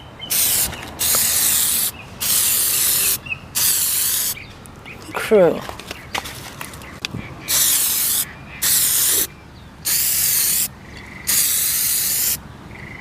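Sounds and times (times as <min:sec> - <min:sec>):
aerosol spray can hissing: 0:00.3 - 0:04.4, 0:07.5 - 0:09.3, 0:09.9 - 0:10.7, 0:11.3 - 0:12.4.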